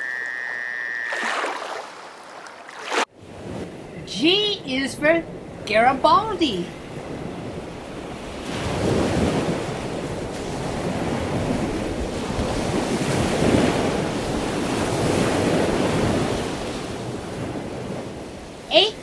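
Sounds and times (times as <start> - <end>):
rushing water: 0.0 - 3.1.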